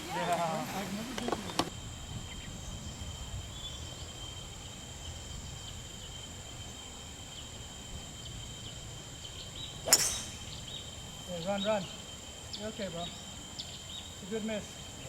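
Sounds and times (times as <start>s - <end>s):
faint chirps: 0.0s - 15.0s
insects shrilling: 0.0s - 15.0s
wind rumble on microphone: 1.0s - 6.2s.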